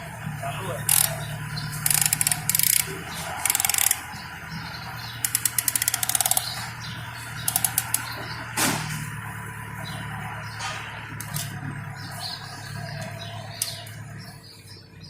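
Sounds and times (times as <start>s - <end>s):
ratchet wrench clicking: 0.8s - 4.2s, 5.1s - 6.7s, 7.4s - 8.2s, 11.2s - 11.5s.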